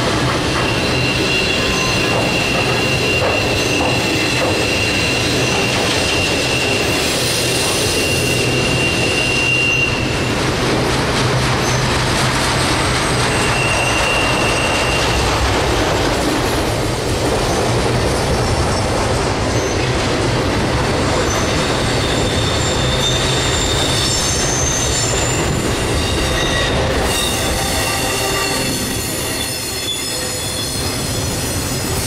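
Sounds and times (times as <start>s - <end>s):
freight train wheels rumbling: 0.0s - 32.0s
high wheel squeal: 0.6s - 10.3s, 13.0s - 15.4s, 21.2s - 32.0s.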